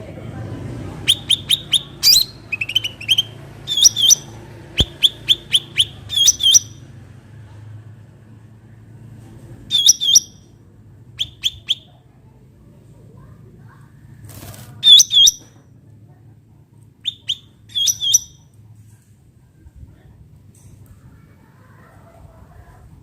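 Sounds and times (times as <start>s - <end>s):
faint low hum: 0.0s - 23.0s
bird chirping: 1.0s - 6.8s, 9.7s - 10.4s, 11.2s - 11.9s, 14.8s - 15.5s, 17.0s - 18.5s.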